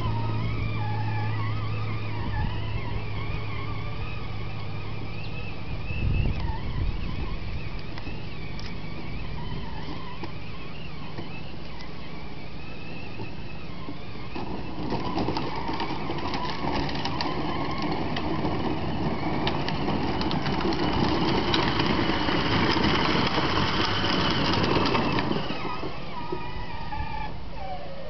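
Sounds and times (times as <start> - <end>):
vehicle motor running: 0.0 - 28.0
rattling and clicking: 13.2 - 26.0.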